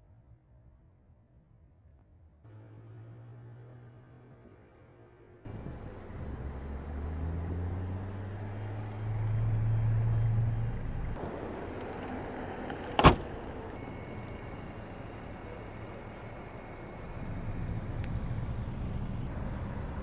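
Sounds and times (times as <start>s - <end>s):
car engine idling: 5.5s - 20.0s.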